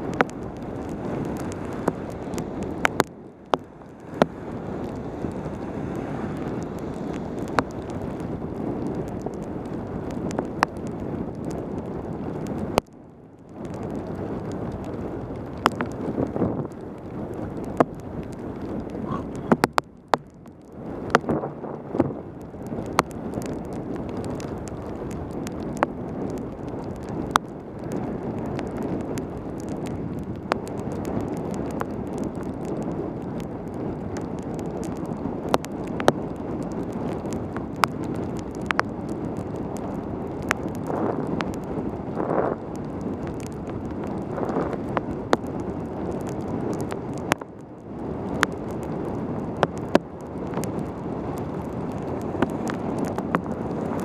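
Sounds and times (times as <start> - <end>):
wind rushing over microphone: 0.0 - 54.0
tyres hissing on wet road: 3.7 - 8.2.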